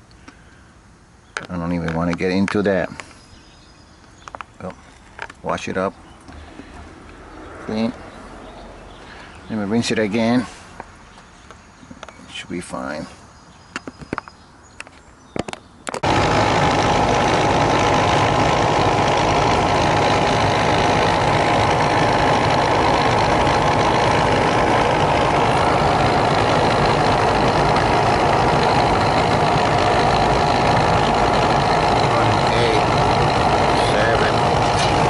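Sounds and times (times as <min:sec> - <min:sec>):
air conditioner humming: 0:16.0 - 0:35.0.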